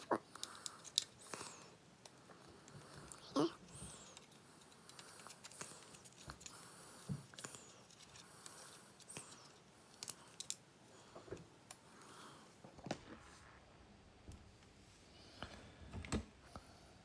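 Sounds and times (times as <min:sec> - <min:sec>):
small plastic parts clicking: 0:00.0 - 0:10.6.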